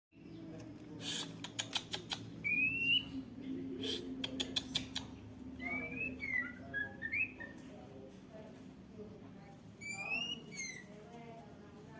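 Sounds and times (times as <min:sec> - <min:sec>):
sharp clicks: 0:00.6 - 0:02.3.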